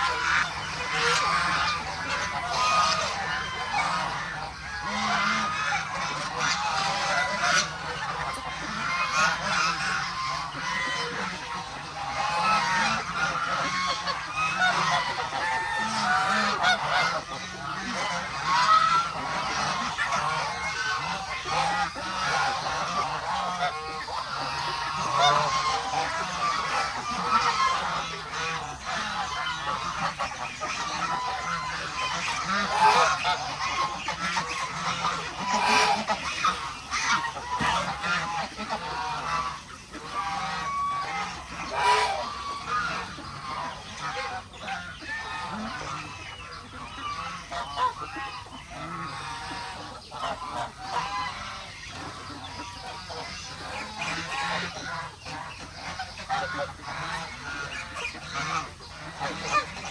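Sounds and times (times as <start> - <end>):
farm fowl calling: 0.0 - 59.9
geese honking: 0.0 - 59.9.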